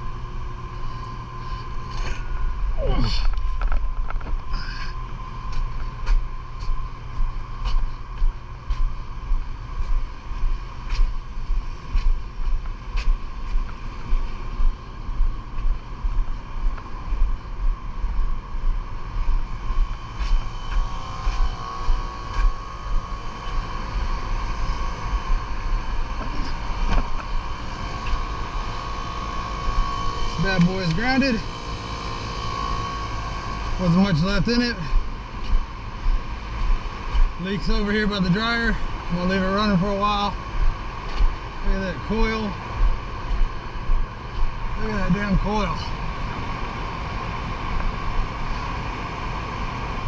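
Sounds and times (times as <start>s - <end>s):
low rumble: 0.0s - 50.0s
machine hum with whine: 0.0s - 50.0s.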